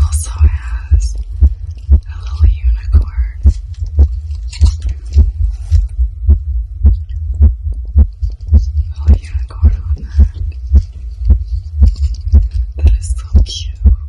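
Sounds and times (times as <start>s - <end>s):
faint rustling: 0.0s - 6.4s
amplified heartbeat: 0.0s - 14.0s.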